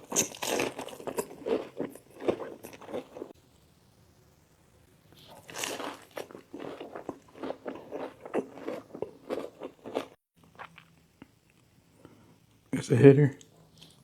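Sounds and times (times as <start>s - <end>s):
person chewing crunchy food: 0.0s - 3.4s, 5.2s - 11.3s, 13.8s - 14.0s.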